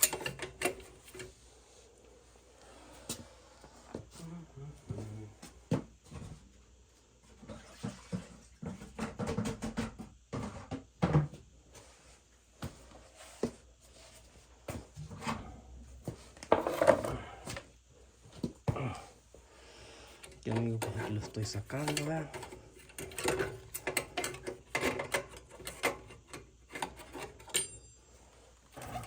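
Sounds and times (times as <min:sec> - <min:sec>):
metallic knocks and tool clatter: 0:00.0 - 0:01.3, 0:16.4 - 0:17.2, 0:20.3 - 0:28.0.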